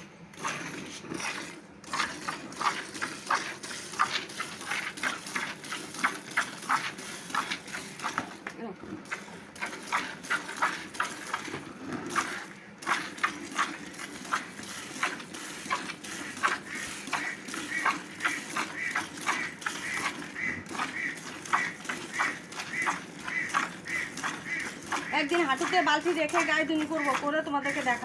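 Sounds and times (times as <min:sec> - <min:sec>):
milk squirting into bucket: 0:00.0 - 0:28.0.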